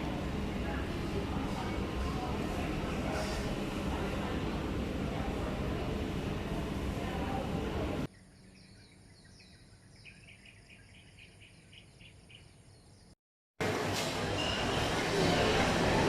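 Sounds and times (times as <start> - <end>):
loud steady noise: 0.0 - 8.1.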